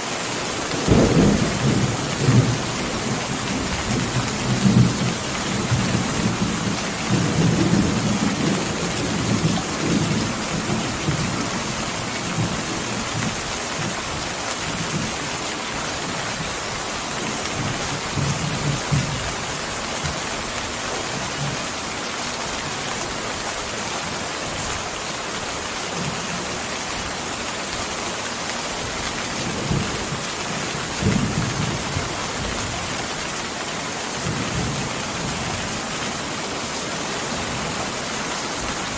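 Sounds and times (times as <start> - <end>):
heavy rain: 0.0 - 38.9
thunder rolling: 0.8 - 11.3.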